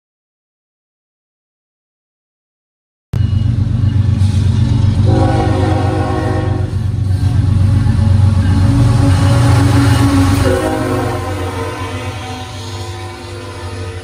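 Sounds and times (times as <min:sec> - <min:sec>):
locomotive engine rumble: 0:03.2 - 0:14.0
air horn chord: 0:05.0 - 0:06.9, 0:09.0 - 0:14.0.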